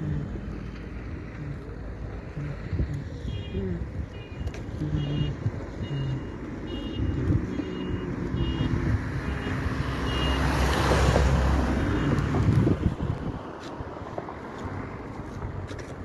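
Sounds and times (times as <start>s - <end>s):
diesel engine running: 0.0s - 10.5s
reverse alarm beeping: 4.2s - 10.5s.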